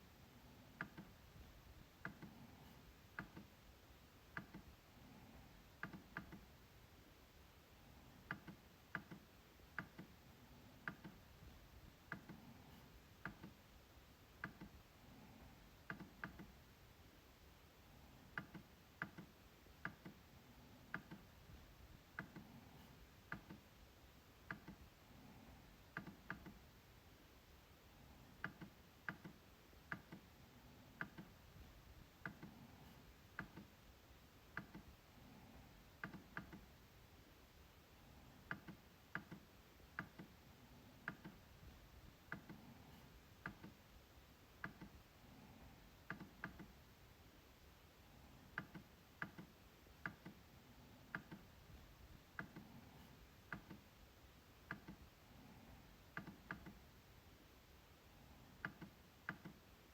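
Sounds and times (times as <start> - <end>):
trackpad clicks: 0.7 - 1.2, 8.2 - 10.2, 10.8 - 11.3, 18.3 - 20.2, 20.9 - 21.3, 31.0 - 31.4, 34.5 - 34.9, 36.0 - 36.7, 38.5 - 40.4, 44.6 - 45.0, 48.5 - 50.4, 51.1 - 51.5, 54.6 - 55.0, 56.1 - 56.8, 58.6 - 59.6.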